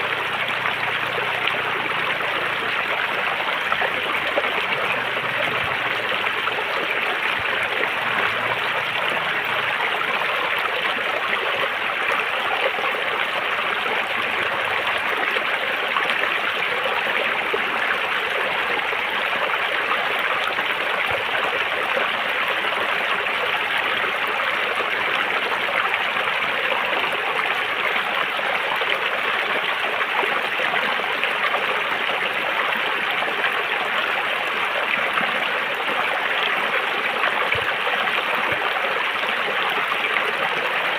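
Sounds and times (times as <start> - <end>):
river water flowing over rocks: 0.0 - 40.9.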